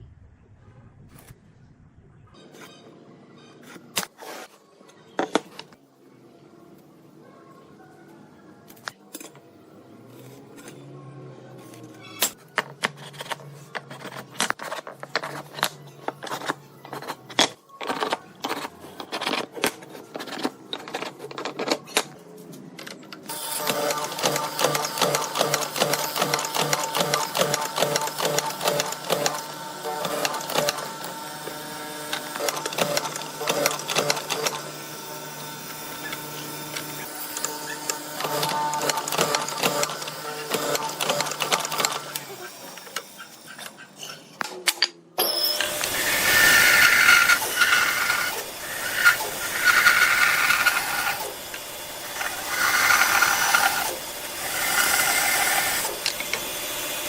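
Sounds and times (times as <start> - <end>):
small machine rattling: 45.6 - 57.0.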